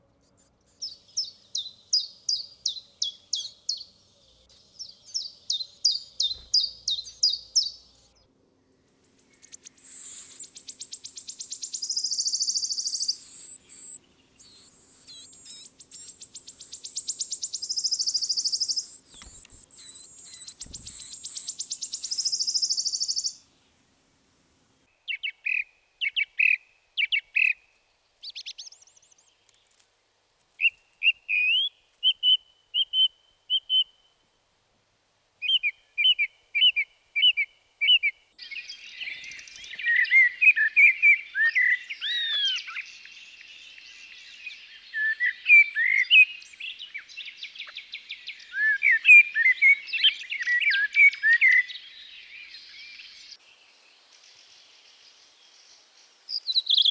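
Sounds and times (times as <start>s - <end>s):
songbird high trill: 4.8s - 7.9s, 9.4s - 23.4s, 35.4s - 53.4s, 54.2s - 56.9s
short whistled bird phrases: 9.8s - 23.4s, 35.4s - 42.9s, 44.2s - 51.8s, 56.4s - 56.9s.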